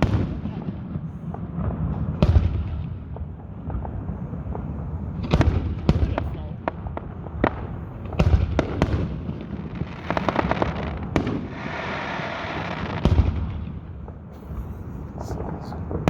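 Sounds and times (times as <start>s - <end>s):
fireworks booming: 0.0s - 16.0s
fireworks crackling: 0.0s - 16.0s.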